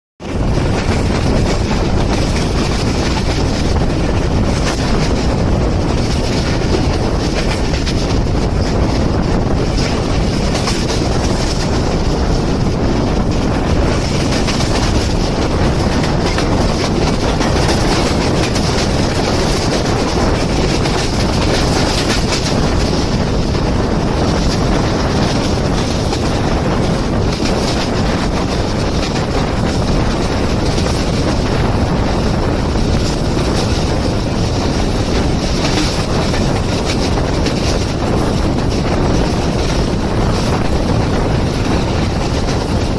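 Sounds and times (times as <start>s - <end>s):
train coaches rumbling past: 0.2s - 42.9s
wheel clatter over rail joints: 0.2s - 42.9s.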